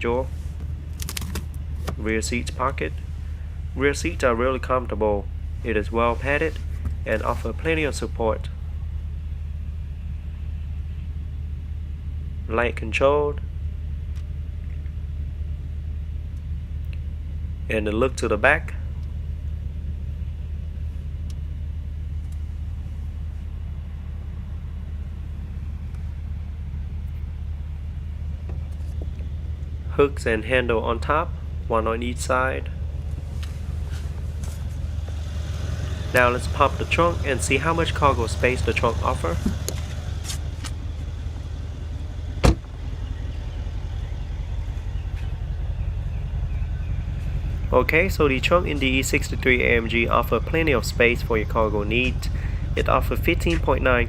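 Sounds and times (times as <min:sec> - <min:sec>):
low rumble inside car cabin: 0:00.0 - 0:54.0
trunk lid clunk: 0:42.3 - 0:43.0.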